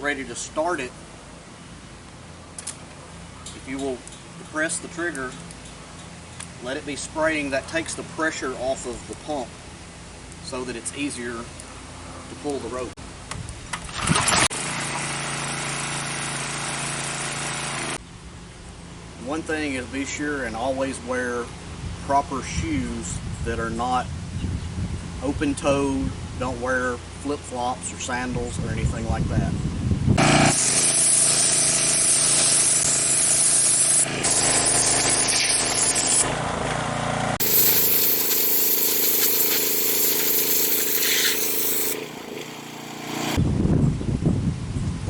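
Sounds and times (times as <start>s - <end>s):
pressure washer engine running: 14.6s - 17.9s, 37.4s - 43.4s
loud burst of noise: 37.4s - 43.4s.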